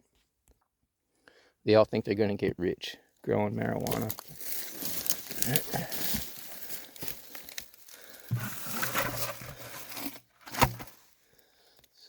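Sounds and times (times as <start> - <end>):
rustling and crunching: 3.7 - 11.1.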